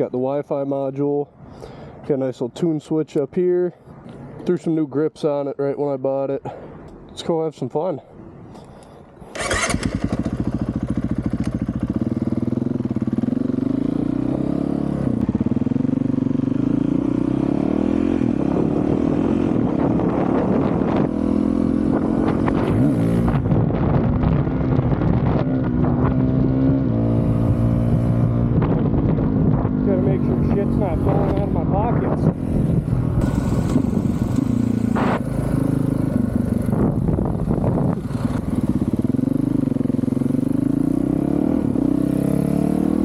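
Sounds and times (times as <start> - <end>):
dirt bike engine revving: 9.4 - 23.5, 29.7 - 43.0.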